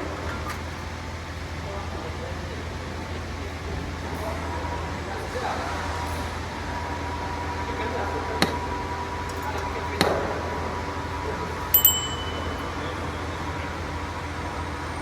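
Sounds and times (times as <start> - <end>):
sharp metallic clinks: 11.7 - 13.3.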